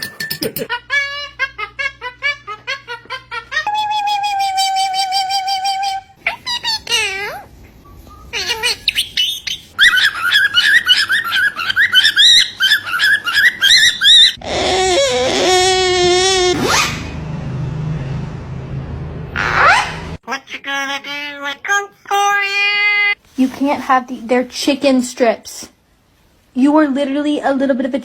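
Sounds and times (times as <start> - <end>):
parrot whistling and chattering: 8.0 - 16.9.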